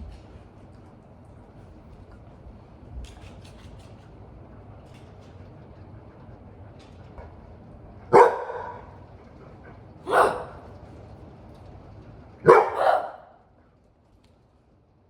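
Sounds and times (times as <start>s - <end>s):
large dog barking: 8.1s - 9.0s, 10.0s - 10.8s, 12.4s - 13.4s.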